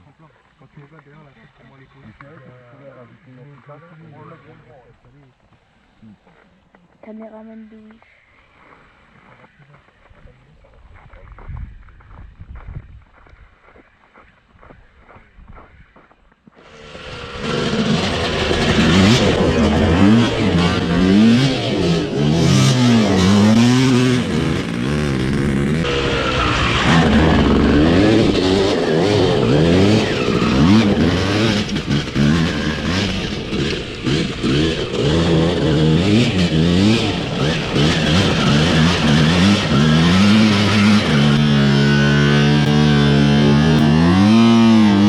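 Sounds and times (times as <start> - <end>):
two-stroke engine revving: 16.6 - 45.0.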